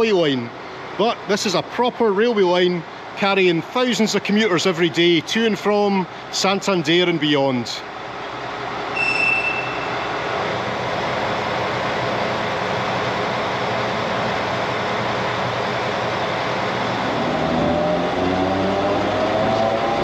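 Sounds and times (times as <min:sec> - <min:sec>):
rising train whine: 0:07.8 - 0:20.0.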